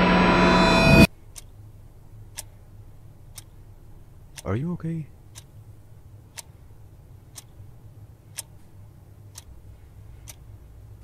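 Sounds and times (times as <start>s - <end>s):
faint low hum: 0.0s - 11.0s
clock ticking: 2.3s - 2.6s, 4.3s - 5.6s, 6.2s - 6.6s, 8.3s - 10.6s.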